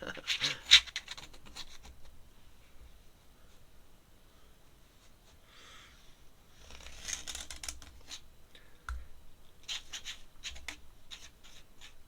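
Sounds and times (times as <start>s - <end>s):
pen scratching on paper: 9.6s - 12.0s.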